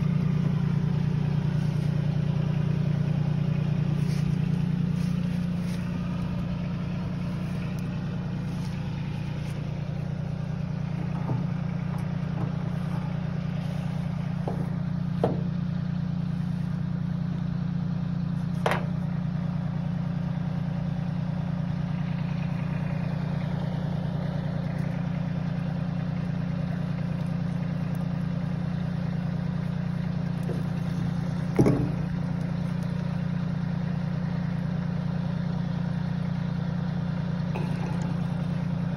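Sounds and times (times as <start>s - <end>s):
tractor diesel engine idling: 0.0s - 38.9s
sharp knocks: 14.4s - 15.5s, 31.5s - 32.1s.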